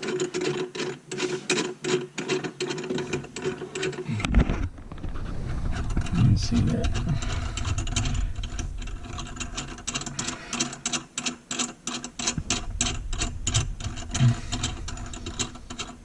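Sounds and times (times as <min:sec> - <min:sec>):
nut ratcheting on threaded shank: 0:06.9 - 0:16.0.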